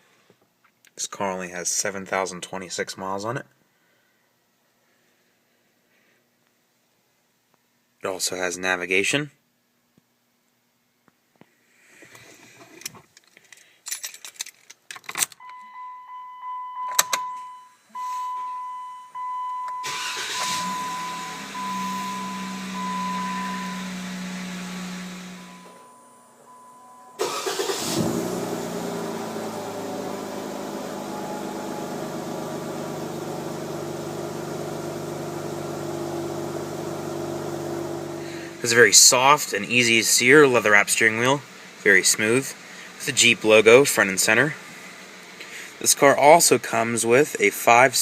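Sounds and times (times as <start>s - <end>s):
dashboard chime beeping: 15.4s - 24.0s, 25.3s - 27.2s
car engine starting and idling: 18.0s - 46.7s.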